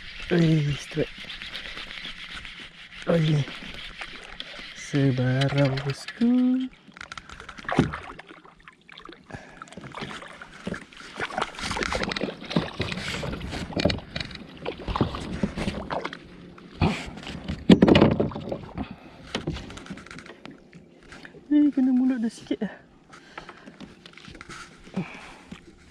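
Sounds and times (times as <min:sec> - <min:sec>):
knocks and rattles on kayak: 0:03.1 - 0:08.3, 0:09.8 - 0:22.2
water splashing: 0:03.1 - 0:17.5.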